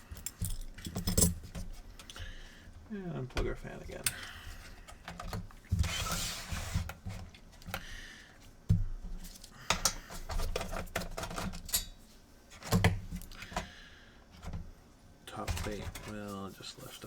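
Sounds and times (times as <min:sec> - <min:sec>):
scraping rustle: 0:15.3 - 0:17.0.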